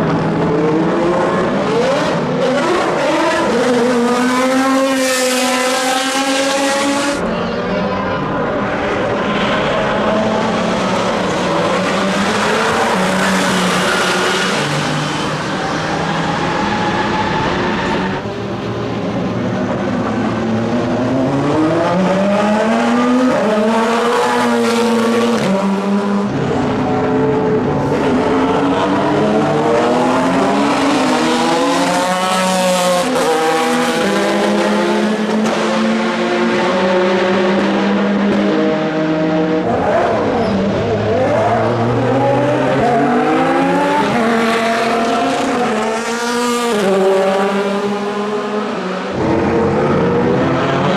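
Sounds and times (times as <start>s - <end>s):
cars passing by: 0.0s - 50.9s
race car engines revving: 0.0s - 50.9s.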